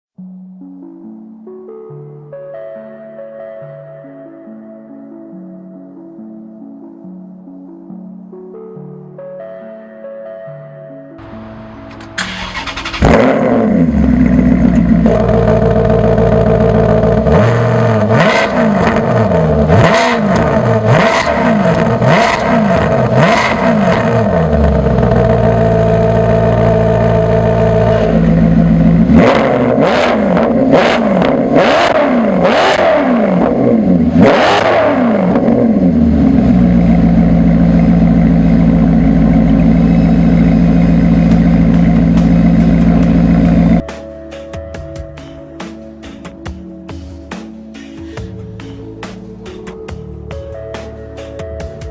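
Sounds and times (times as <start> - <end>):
car engine idling and revving: 11.2 - 43.9.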